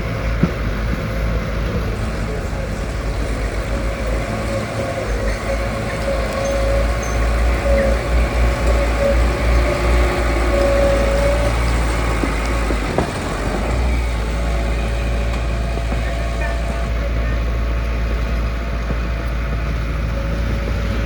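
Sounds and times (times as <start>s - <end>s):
heavy machinery engine rumbling: 0.0s - 21.0s
held whine: 0.0s - 21.0s.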